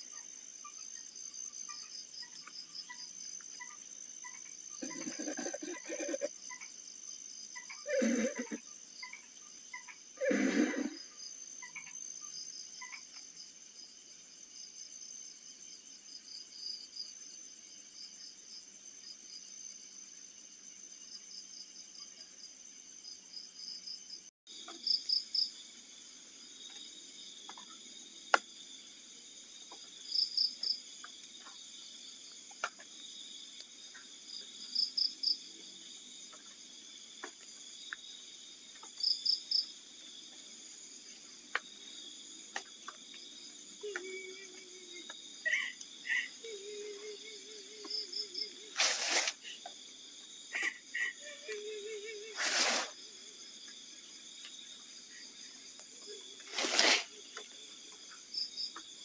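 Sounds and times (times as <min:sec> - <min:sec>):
cricket chirps: 0:00.0 - 0:59.0
insects high-pitched trill: 0:00.0 - 0:59.0.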